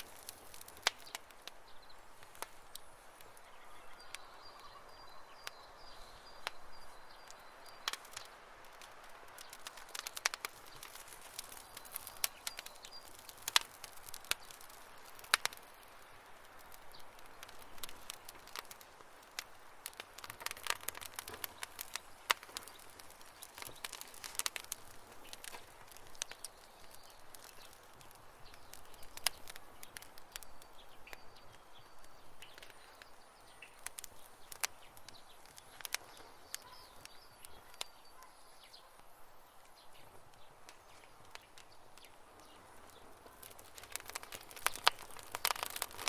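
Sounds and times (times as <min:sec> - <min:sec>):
campfire crackling and popping: 0:00.0 - 0:46.0
faint high chirps: 0:02.6 - 0:07.9, 0:35.0 - 0:40.1.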